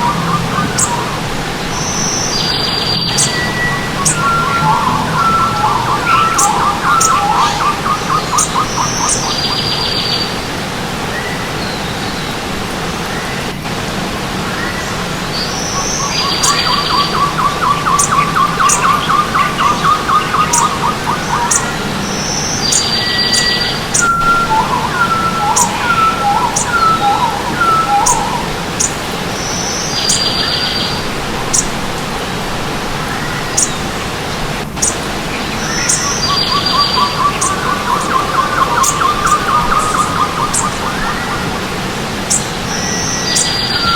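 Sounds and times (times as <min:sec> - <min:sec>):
rattling bird calls: 0:00.0 - 0:10.3, 0:15.8 - 0:29.0, 0:34.8 - 0:43.9
forest birds singing: 0:00.0 - 0:43.9
stream water rushing: 0:00.0 - 0:43.9.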